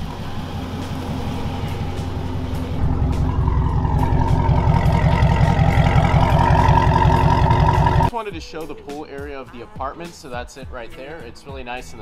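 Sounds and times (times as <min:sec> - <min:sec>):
car engine rumbling: 0:00.0 - 0:08.1.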